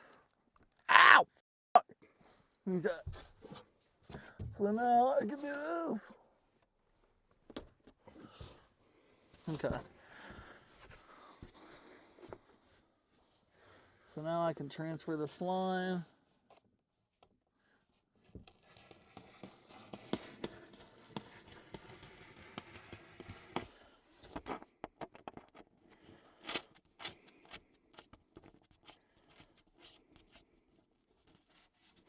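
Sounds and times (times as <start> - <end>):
scraping on styrofoam: 18.5 - 24.3.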